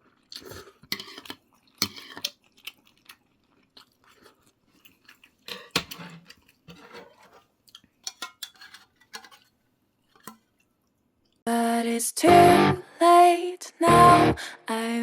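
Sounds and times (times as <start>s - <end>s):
chewing: 0.0s - 8.0s
cutlery clinking against dish: 0.9s - 2.4s, 5.5s - 7.4s, 8.0s - 9.4s.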